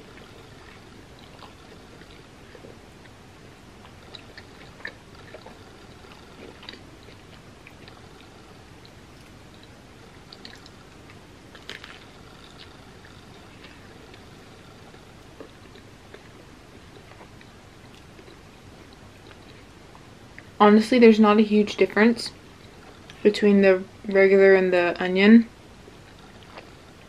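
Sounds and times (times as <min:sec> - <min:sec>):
chewing toasted sandwich: 0:00.0 - 0:20.6, 0:26.0 - 0:27.0.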